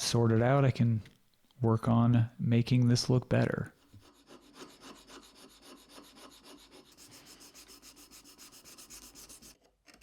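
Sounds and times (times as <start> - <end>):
sanding wood by hand: 4.0 - 9.6.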